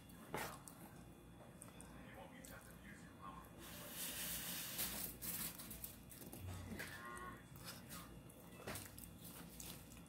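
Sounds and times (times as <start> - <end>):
person chewing food: 5.2 - 10.0.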